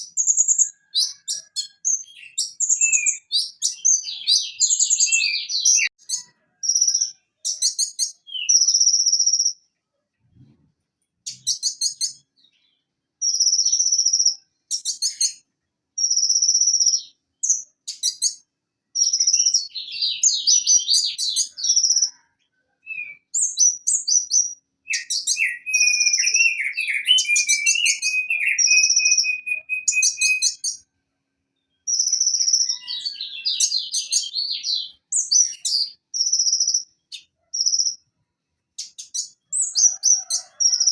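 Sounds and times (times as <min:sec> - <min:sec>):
bird singing buzzy trills: 0:00.0 - 0:09.6, 0:11.2 - 0:15.4, 0:22.9 - 0:30.8, 0:31.6 - 0:38.0.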